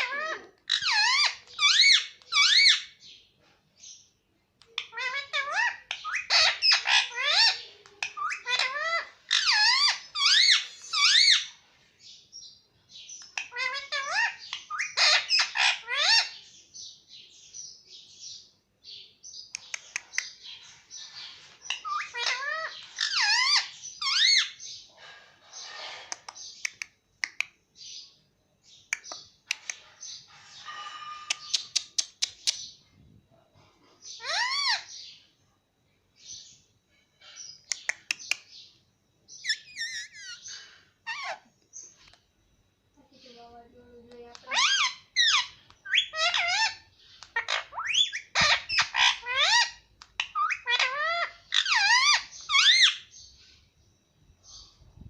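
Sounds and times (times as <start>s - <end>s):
loud parakeet call: 0.0s - 3.0s, 4.9s - 11.6s, 13.4s - 16.4s, 20.4s - 26.1s, 34.1s - 35.2s, 44.5s - 53.1s
sharp clicks: 19.6s - 20.3s, 26.1s - 27.6s, 37.7s - 38.5s
parakeet chattering softly: 28.9s - 32.7s, 39.4s - 42.2s, 43.1s - 53.0s.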